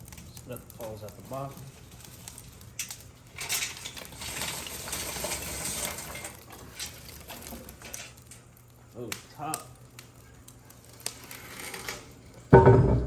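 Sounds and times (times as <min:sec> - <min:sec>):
hot coals clattering: 0:00.0 - 0:13.0
knocks on chimney starter: 0:12.5 - 0:13.0.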